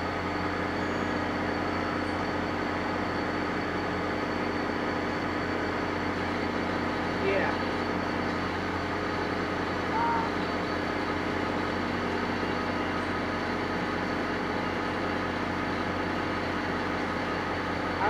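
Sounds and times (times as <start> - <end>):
train idling hum: 0.0 - 18.0
short tone: 0.7 - 1.3, 9.9 - 10.7.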